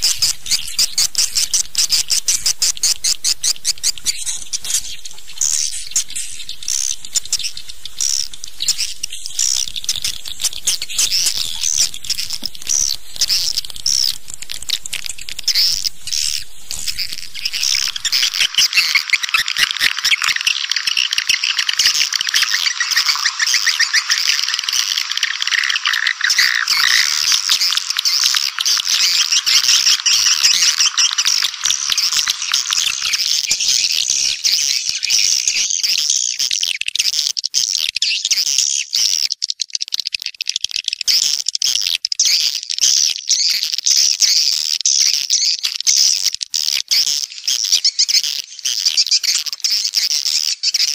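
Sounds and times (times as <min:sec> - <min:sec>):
twittering bird chatter: 0:00.0 - 0:50.9.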